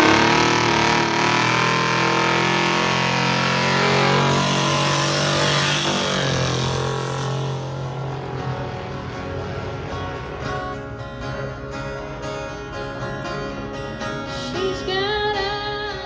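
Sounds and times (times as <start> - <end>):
car engine running high: 0.0 - 14.9.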